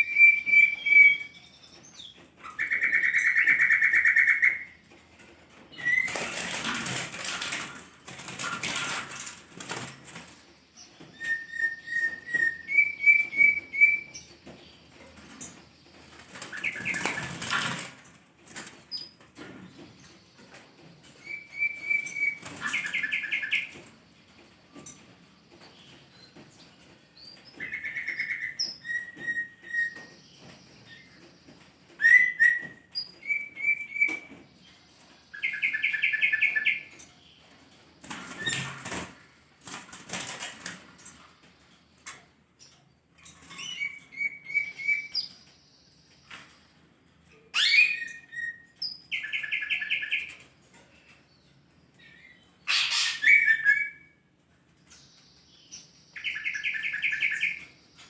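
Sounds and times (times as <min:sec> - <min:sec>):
bird whistling and buzzy calls: 0:00.0 - 0:04.8, 0:09.6 - 0:14.4, 0:21.1 - 0:24.0, 0:27.2 - 0:31.3, 0:31.9 - 0:34.7, 0:35.3 - 0:37.0, 0:43.4 - 0:46.4, 0:47.5 - 0:50.5, 0:52.0 - 0:54.3, 0:55.5 - 0:58.0
wing flapping: 0:02.2 - 0:14.1, 0:14.9 - 0:19.9.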